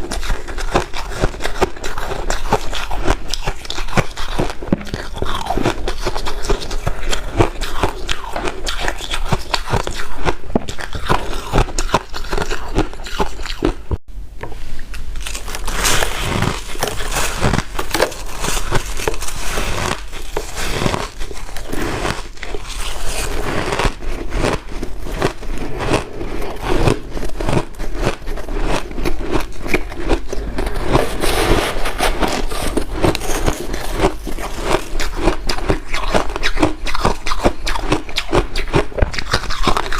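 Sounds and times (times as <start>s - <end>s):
ice being crunched: 15.2s - 36.5s.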